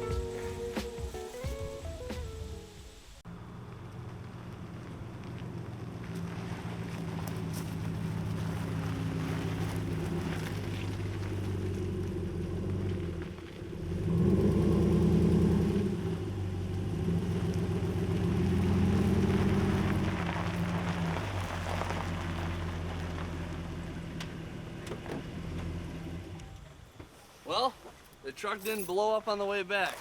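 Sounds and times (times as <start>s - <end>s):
truck engine revving: 3.2s - 26.9s.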